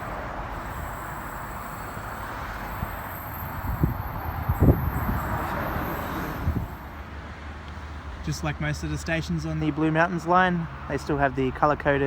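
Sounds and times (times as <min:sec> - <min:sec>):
wind buffeting microphone: 0:02.7 - 0:06.8.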